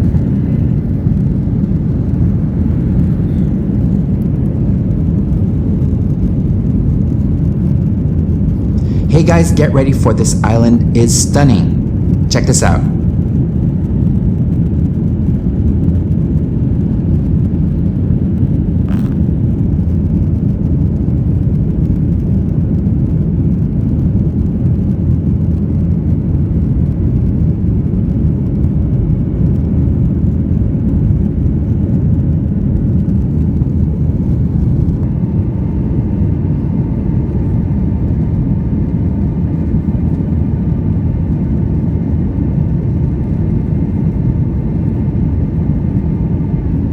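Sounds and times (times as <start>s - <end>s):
faint higher hum: 0.0s - 5.8s, 8.3s - 14.1s
airplane cabin engine rumble: 0.0s - 46.9s.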